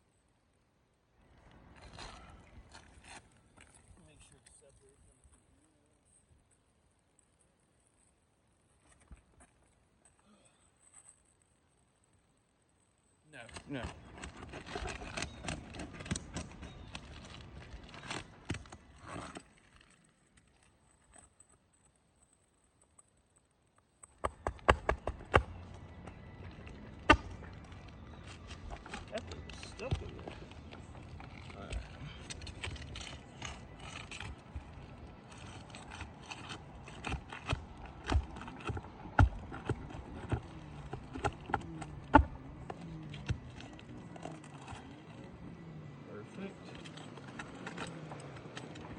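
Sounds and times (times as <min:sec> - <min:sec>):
roof shingles scraping and crackling: 0:13.4 - 0:48.9.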